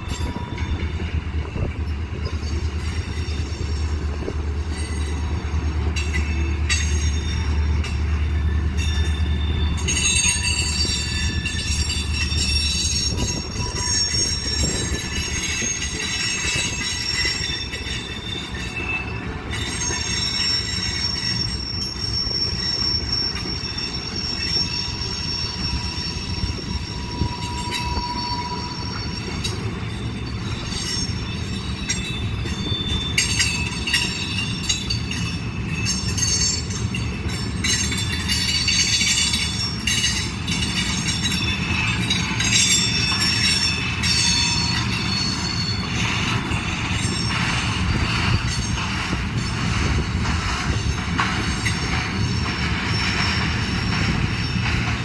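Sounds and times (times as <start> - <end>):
freight train rumble: 0.0 - 55.0
wheel squeal: 0.0 - 55.0
wheels clicking and clanking: 28.9 - 55.0.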